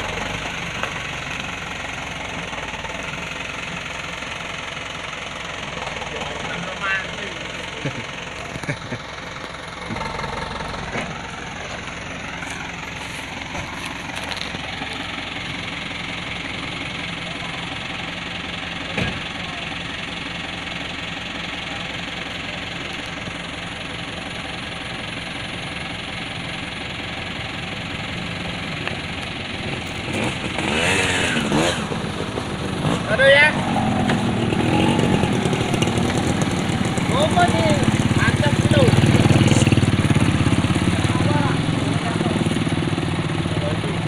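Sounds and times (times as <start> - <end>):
truck engine running: 0.0 - 44.0.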